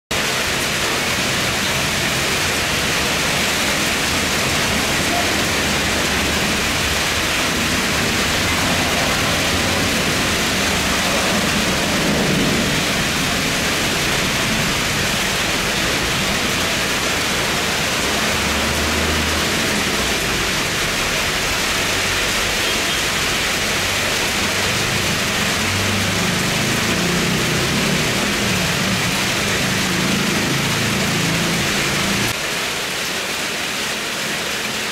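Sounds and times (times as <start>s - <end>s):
rain falling: 0.1s - 34.9s
jet engines rumbling: 0.4s - 22.2s.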